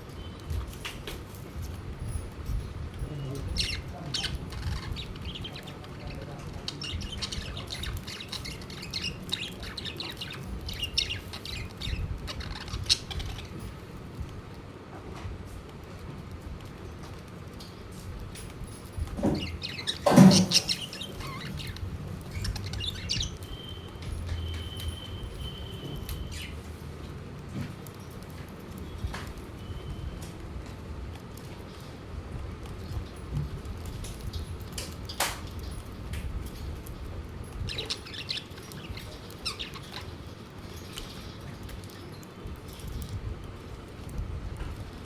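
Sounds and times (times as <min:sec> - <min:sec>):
budgies chirping: 0:00.1 - 0:14.3, 0:18.8 - 0:26.8, 0:33.9 - 0:43.7.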